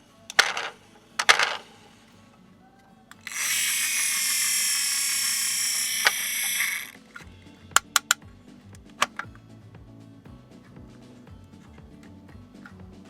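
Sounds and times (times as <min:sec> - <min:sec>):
small electric motor whirring: 0:03.2 - 0:07.0
clicking rattles: 0:03.2 - 0:08.2.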